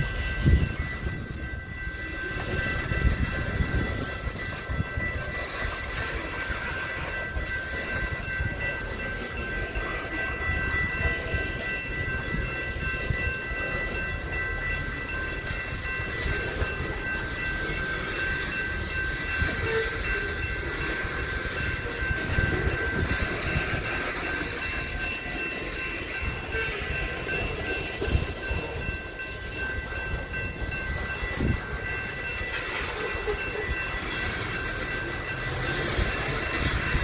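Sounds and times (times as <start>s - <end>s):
steady high tones: 0.0s - 37.0s
train rumbling past: 0.0s - 37.0s.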